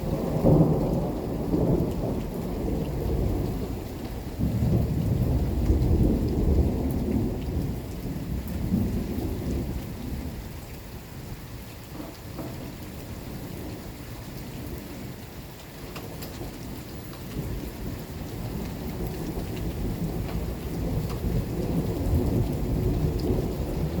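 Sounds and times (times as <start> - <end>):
thunder rumbling: 0.0 - 10.6, 16.1 - 24.0
raindrops ticking: 0.0 - 24.0
steady rain: 0.0 - 24.0.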